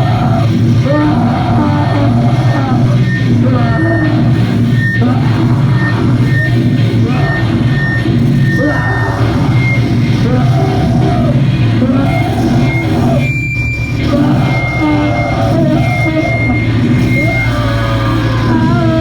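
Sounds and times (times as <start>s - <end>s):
heavy bass: 0.0s - 19.0s
punk band playing distorted music: 0.0s - 19.0s
shouted vocals: 0.0s - 19.0s.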